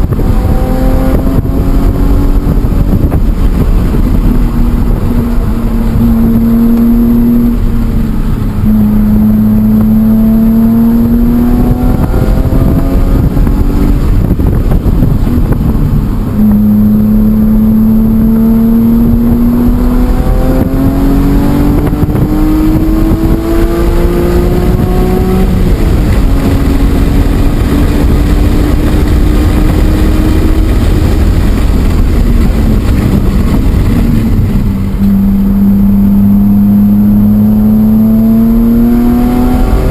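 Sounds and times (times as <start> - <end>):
car engine revving hard: 0.0 - 39.9.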